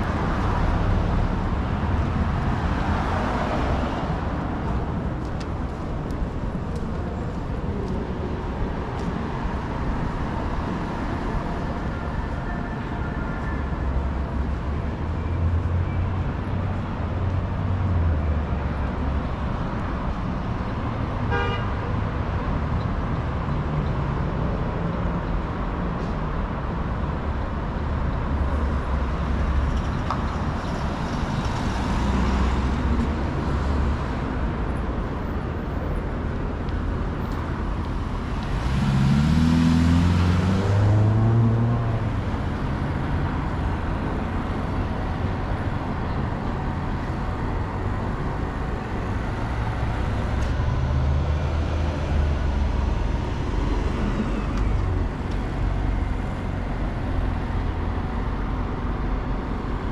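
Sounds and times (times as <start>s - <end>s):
passing cars rumble: 0.0s - 59.9s
vehicle accelerating past: 38.5s - 42.0s.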